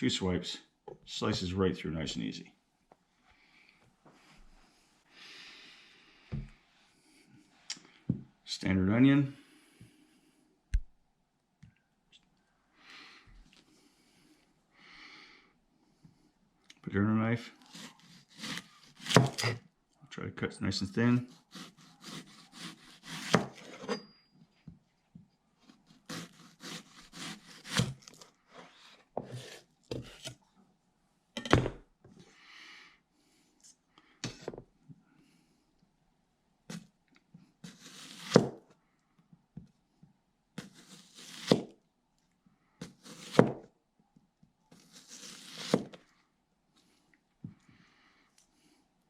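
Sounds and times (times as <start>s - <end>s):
knife cutting onion on board: 17.7s - 19.6s, 21.2s - 24.1s, 25.7s - 28.6s, 29.2s - 30.4s, 37.6s - 38.6s, 40.6s - 41.7s, 42.8s - 43.6s, 44.8s - 46.0s.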